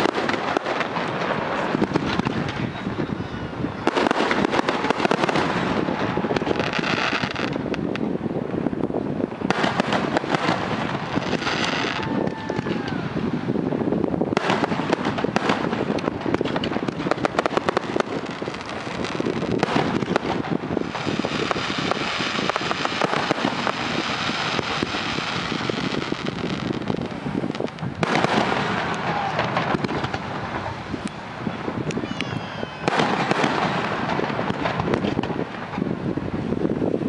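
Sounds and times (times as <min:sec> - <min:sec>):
fireworks bangs and crackling: 0:00.0 - 0:37.0
falling firework whistles: 0:09.5 - 0:13.2, 0:32.0 - 0:35.3.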